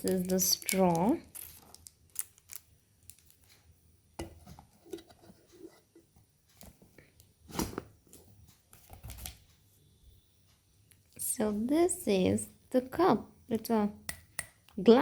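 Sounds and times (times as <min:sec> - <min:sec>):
packaging being handled and opened: 0:00.0 - 0:03.6.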